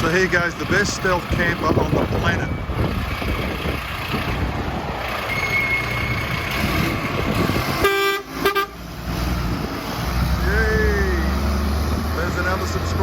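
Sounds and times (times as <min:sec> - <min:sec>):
truck engine rumbling: 0:00.0 - 0:13.0
vehicle horn toots: 0:07.7 - 0:08.8.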